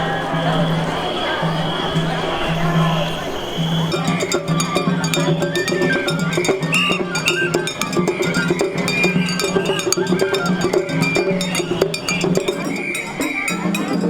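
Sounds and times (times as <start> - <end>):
fast clicking percussion: 3.8 - 14.0
festival music melody: 3.9 - 14.0.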